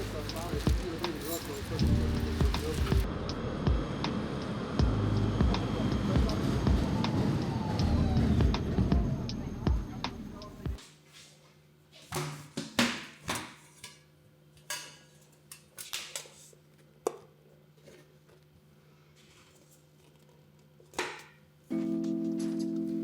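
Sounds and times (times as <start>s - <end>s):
small objects clicking and clattering: 0.0s - 3.0s.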